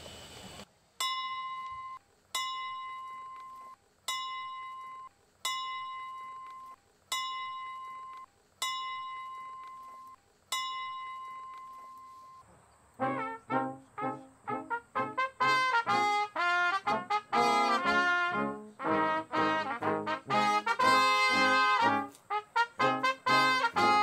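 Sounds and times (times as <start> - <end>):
small brass bell ringing: 1.0 - 12.4.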